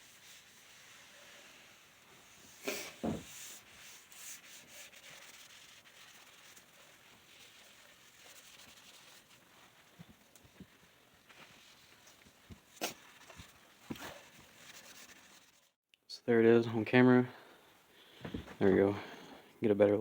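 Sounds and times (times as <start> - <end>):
sandpaper rubbing on wood: 0.0 - 9.5.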